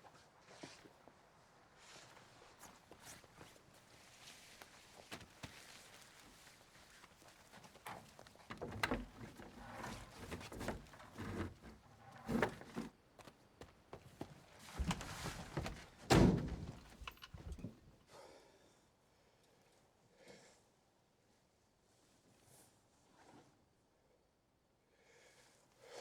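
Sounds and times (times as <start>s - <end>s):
irregular thuds and knocks: 13.6s - 17.9s.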